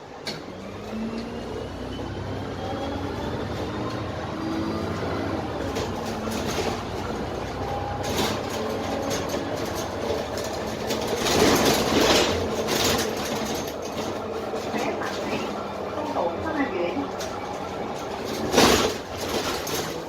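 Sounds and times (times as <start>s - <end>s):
bus diesel engine running: 0.0s - 20.0s
panels rattling and knocking: 5.6s - 20.0s.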